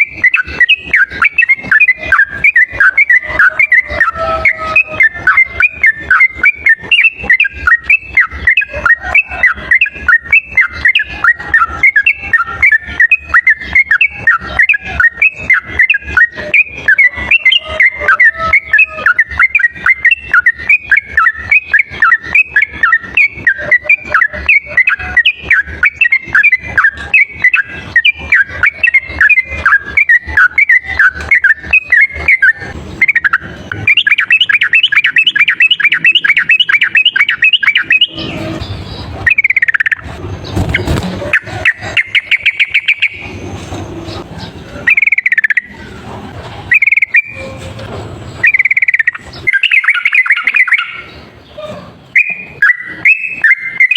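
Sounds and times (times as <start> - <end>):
bird singing rapid whistled notes: 0.0 - 46.0, 46.7 - 47.5, 48.4 - 53.9
dull thump: 40.5 - 41.3.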